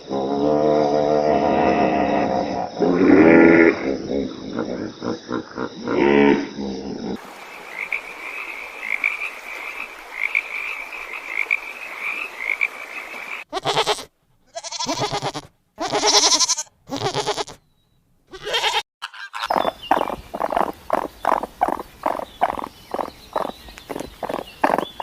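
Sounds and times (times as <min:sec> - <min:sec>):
frog chorus pulsing: 0:00.0 - 0:13.5, 0:19.4 - 0:25.0
hen clucking rapidly: 0:18.4 - 0:25.0.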